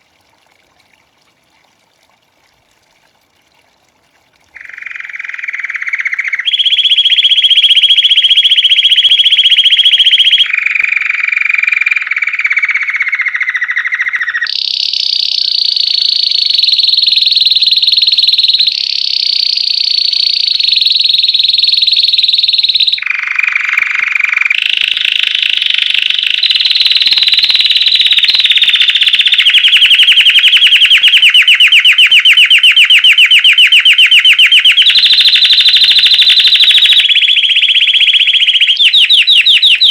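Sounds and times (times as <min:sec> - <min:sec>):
canary singing trills: 0:04.6 - 0:39.9.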